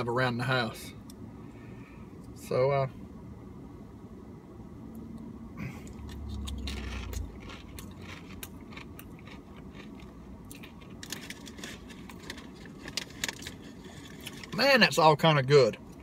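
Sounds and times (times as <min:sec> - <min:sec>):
low hum: 0:00.9 - 0:14.5
crunching tortilla chip: 0:06.0 - 0:14.6.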